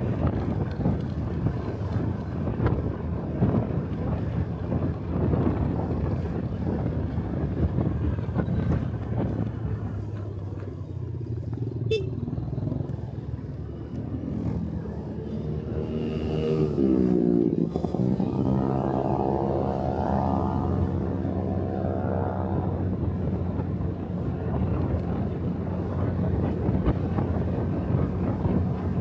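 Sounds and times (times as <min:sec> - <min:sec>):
wind and road noise: 0:00.0 - 0:29.0.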